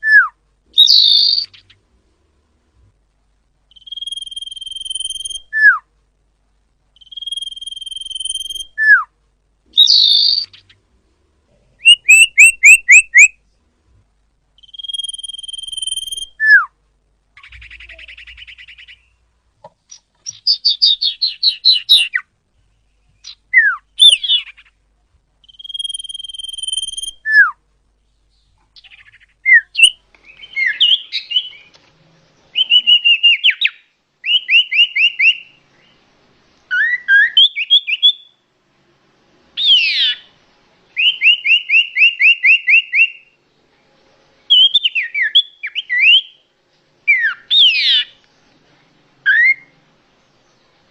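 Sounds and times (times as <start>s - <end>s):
chirping trills and chatter: 0.0s - 1.8s, 3.7s - 5.8s, 6.9s - 9.1s, 9.7s - 10.8s, 11.6s - 13.5s, 14.6s - 16.7s, 17.4s - 19.2s, 19.8s - 24.8s, 25.4s - 27.6s, 28.2s - 36.0s, 39.6s - 50.9s
high bird whistle: 3.7s - 5.8s, 7.0s - 9.1s, 9.8s - 10.6s, 11.8s - 13.4s, 14.6s - 16.7s, 23.2s - 24.7s, 25.4s - 27.6s, 28.8s - 31.7s, 32.6s - 35.6s, 36.7s - 38.4s, 41.0s - 43.4s, 44.5s - 46.4s, 49.3s - 49.7s.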